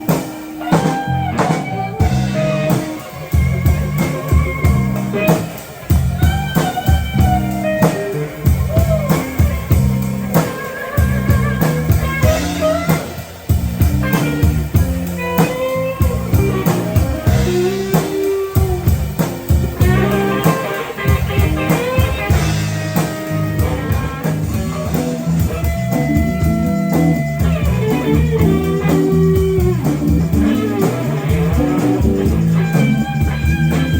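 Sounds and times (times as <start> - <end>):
blues-rock band playing: 0.0 - 33.9
electric guitar lead lines: 0.0 - 33.9.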